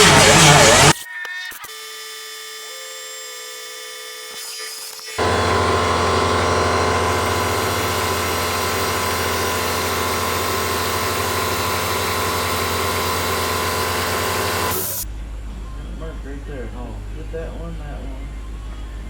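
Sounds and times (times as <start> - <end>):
motor whining: 0.0 - 15.1.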